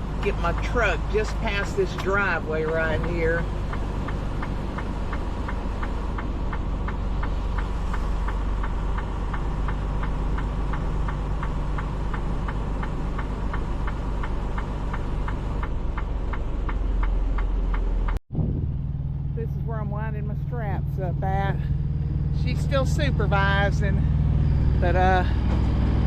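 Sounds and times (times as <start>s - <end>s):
diesel truck engine running: 0.0s - 26.0s
light ticking: 0.1s - 18.2s.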